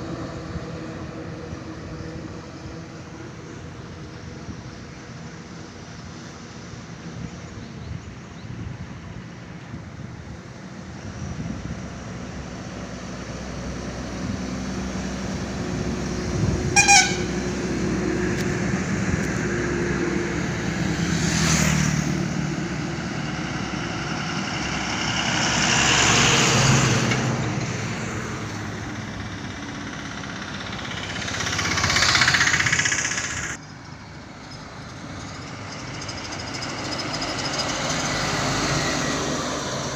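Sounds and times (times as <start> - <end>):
trucks passing on highway: 0.0 - 39.9
loud horn blast: 16.4 - 17.8.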